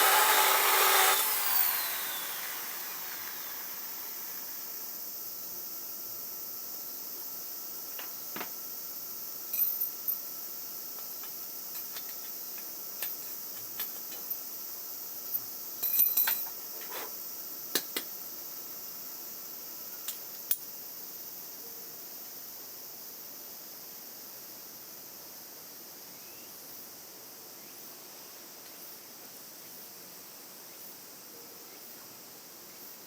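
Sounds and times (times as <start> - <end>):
steady high hiss: 0.0 - 33.0
metal tools clinking: 9.5 - 10.0, 15.8 - 16.5.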